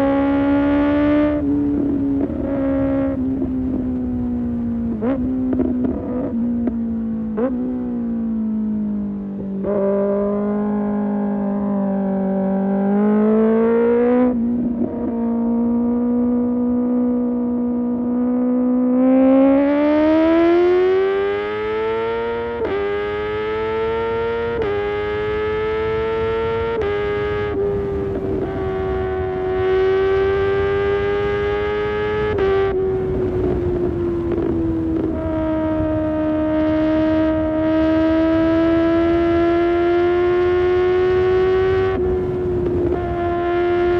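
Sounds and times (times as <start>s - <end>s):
motorcycle engine revving: 0.0s - 43.9s
motorcycle upshifts: 9.6s - 43.9s.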